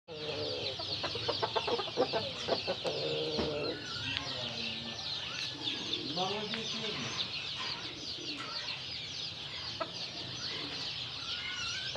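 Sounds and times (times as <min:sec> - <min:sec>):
chickens clucking: 0:00.1 - 0:11.9
dense high-pitched chirping: 0:00.1 - 0:11.9.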